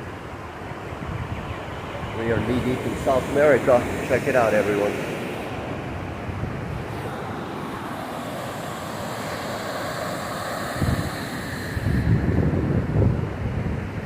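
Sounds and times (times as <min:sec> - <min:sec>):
wind buffeting microphone: 0:00.0 - 0:14.0
waterfall rushing: 0:06.9 - 0:12.1.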